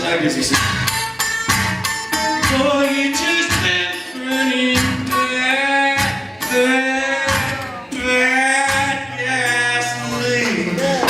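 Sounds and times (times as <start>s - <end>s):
live band playing: 0.0s - 11.0s
man singing long notes: 2.5s - 11.0s.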